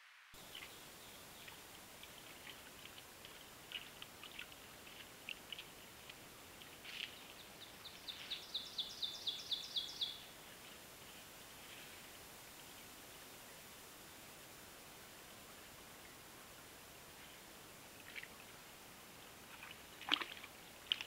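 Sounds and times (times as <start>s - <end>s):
steady hiss: 0.0s - 21.0s
wild birds chirping: 0.4s - 13.7s.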